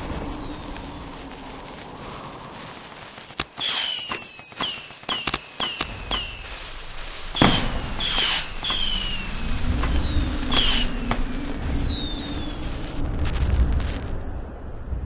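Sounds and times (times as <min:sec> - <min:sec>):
fireworks falling whistle: 0:00.1 - 0:00.9, 0:03.4 - 0:12.8
fireworks bangs: 0:02.6 - 0:14.2.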